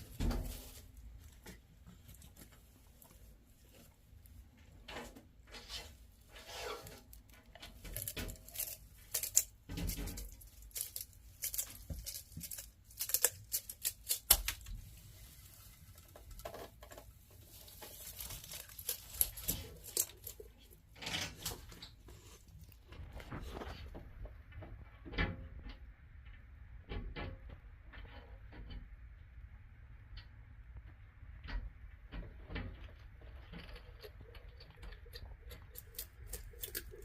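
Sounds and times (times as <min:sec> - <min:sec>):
lizard biting and chewing: 0:06.3 - 0:14.9, 0:17.6 - 0:20.8, 0:33.2 - 0:37.0.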